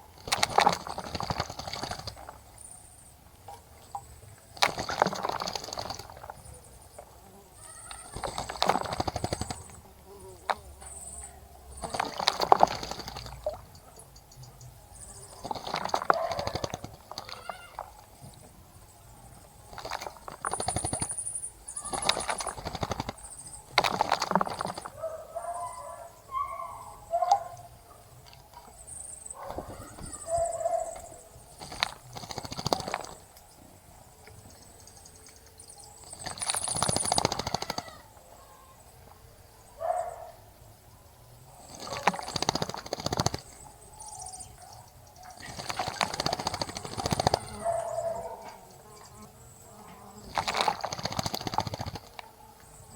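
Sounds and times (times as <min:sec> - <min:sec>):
birds splashing and fluttering: 0:00.0 - 0:40.4, 0:41.4 - 0:52.9
short low bird calls: 0:29.4 - 0:31.8.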